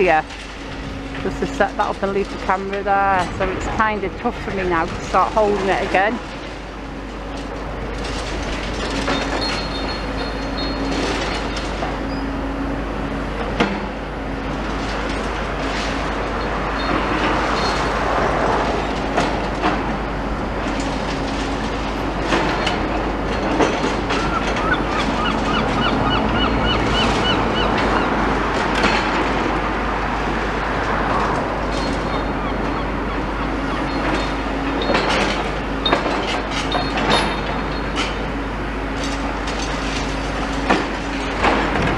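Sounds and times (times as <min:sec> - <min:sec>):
diesel engine hum: 0:00.0 - 0:41.9.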